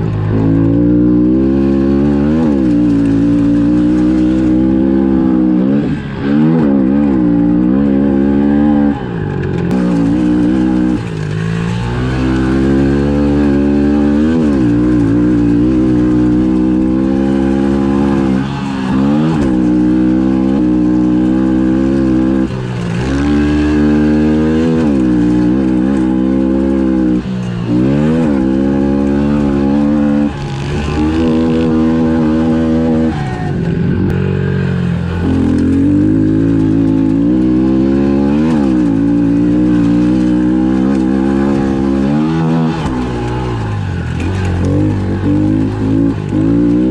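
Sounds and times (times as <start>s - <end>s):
motorbike engine revving: 0.0s - 46.9s.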